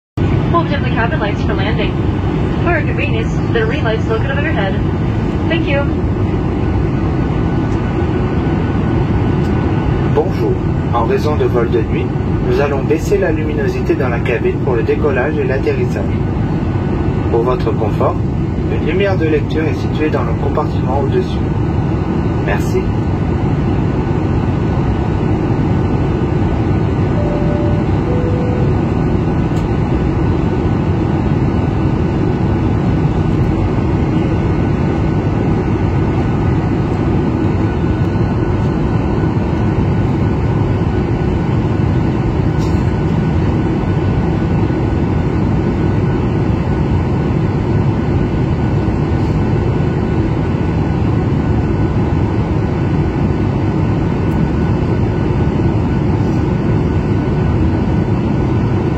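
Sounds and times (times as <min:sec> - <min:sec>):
airliner cabin noise: 0:00.2 - 0:58.9
two-note falling chime: 0:27.1 - 0:29.0.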